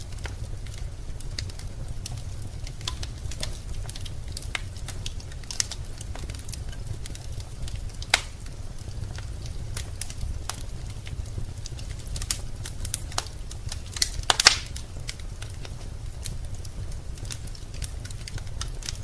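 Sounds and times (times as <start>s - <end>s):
fire crackling in a fireplace: 0.0s - 19.0s.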